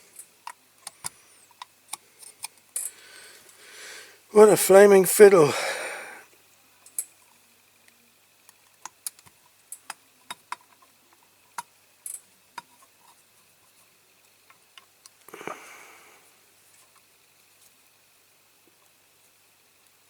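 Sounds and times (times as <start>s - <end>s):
soft rush of noise: 3.0s - 6.3s, 15.3s - 16.9s.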